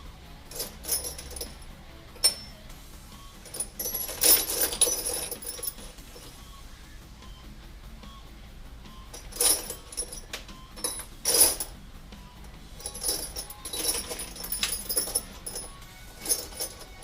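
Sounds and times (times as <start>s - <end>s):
small metal parts clinking: 0.5s - 2.6s, 3.4s - 6.4s, 9.1s - 11.8s, 12.8s - 17.0s.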